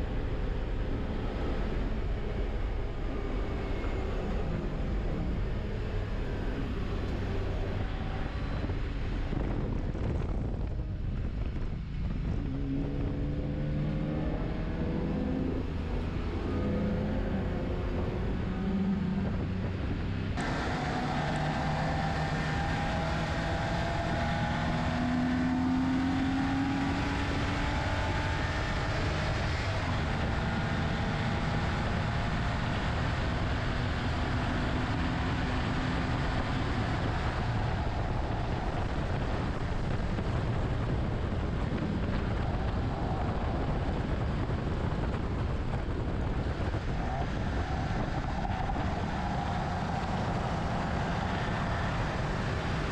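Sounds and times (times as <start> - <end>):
car engine running hard: 0.0 - 52.9
wind and tyre noise: 0.0 - 52.9.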